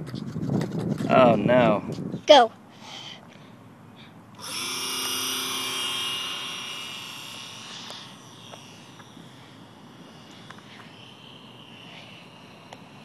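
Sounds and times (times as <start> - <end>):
model plane motor whining: 4.4 - 13.0.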